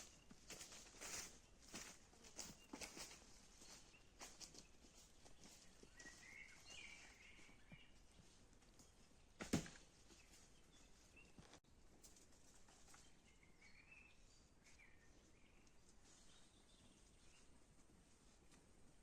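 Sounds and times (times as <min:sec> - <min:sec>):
faint bird chirps: 0:00.0 - 0:09.1, 0:12.8 - 0:17.6.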